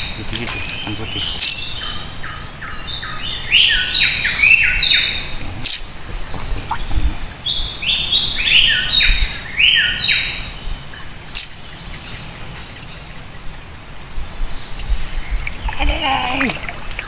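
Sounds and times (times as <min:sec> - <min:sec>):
sharp click: 0:01.4 - 0:01.6.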